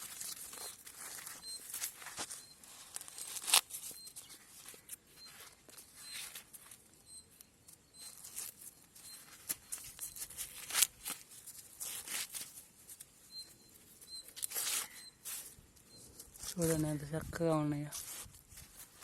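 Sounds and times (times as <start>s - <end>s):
corn husks tearing: 0.0s - 4.9s
faint high chirps: 0.5s - 10.7s, 11.4s - 17.0s.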